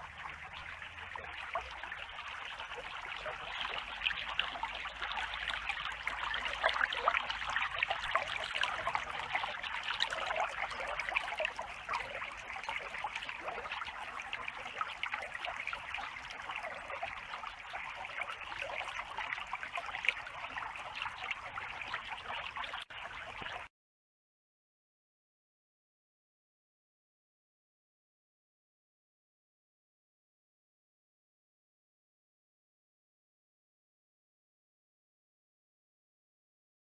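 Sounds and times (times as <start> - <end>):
creek water babbling over stones: 0.0 - 23.7.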